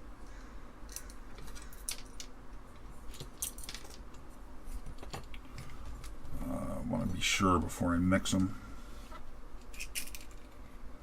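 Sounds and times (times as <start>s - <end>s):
small metal screws clinking: 0.9s - 2.3s, 3.1s - 4.1s, 9.6s - 10.6s.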